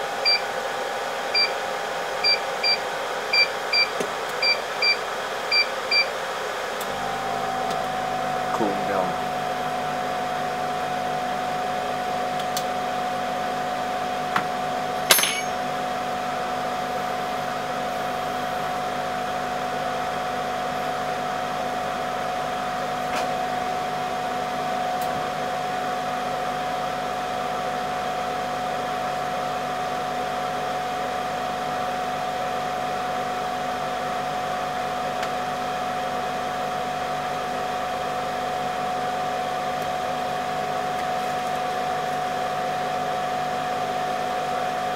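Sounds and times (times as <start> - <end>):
electric air blower humming: 6.8 - 13.1.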